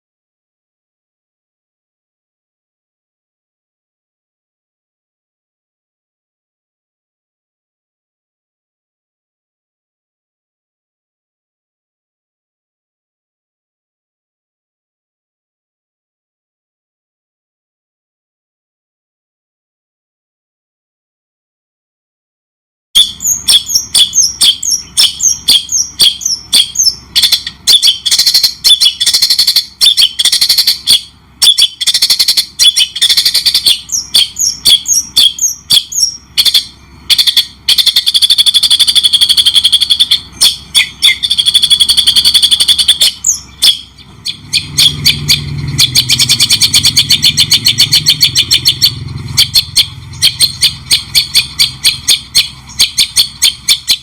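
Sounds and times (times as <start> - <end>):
songbird singing chirps and trills: 23.0 - 54.0.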